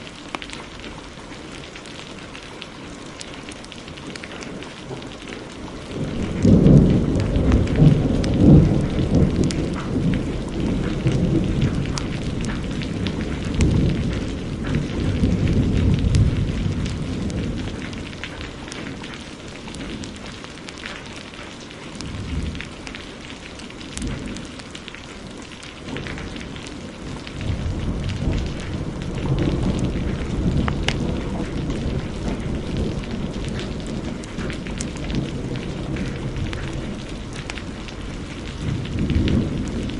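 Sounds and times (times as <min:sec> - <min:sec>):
heavy rain falling: 0:00.0 - 0:39.9
wood fire crackling: 0:00.0 - 0:39.9
rolling thunder: 0:04.2 - 0:20.3, 0:22.0 - 0:23.0, 0:25.8 - 0:39.9.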